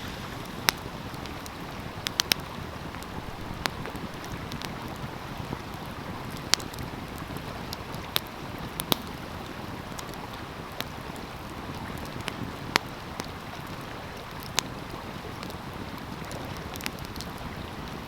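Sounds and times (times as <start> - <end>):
flowing stream: 0.0 - 18.0
wood fire crackling and popping: 0.0 - 18.0.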